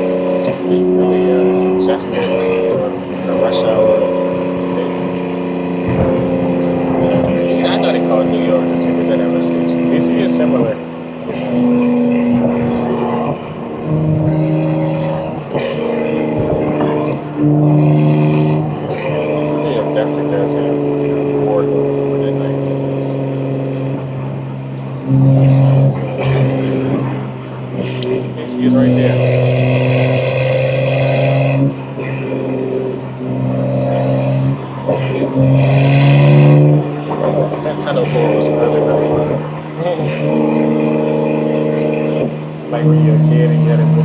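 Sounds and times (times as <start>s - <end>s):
car engine revving through gears: 0.0s - 44.0s.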